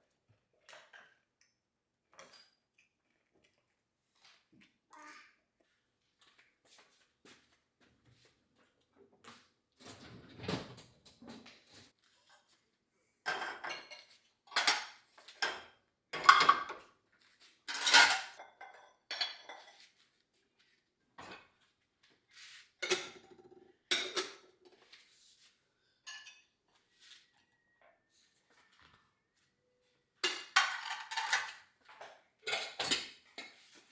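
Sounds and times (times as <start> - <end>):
dishes and cutlery clinking: 13.3 - 16.9, 17.6 - 20.0, 22.8 - 25.0, 26.0 - 26.6, 30.2 - 33.9.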